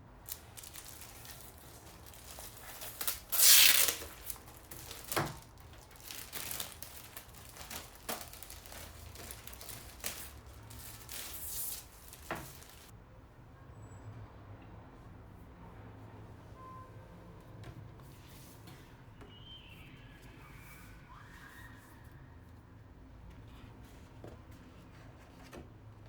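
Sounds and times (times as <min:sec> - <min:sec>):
packaging crinkling: 0:00.3 - 0:12.9
packaging tearing: 0:00.3 - 0:12.9.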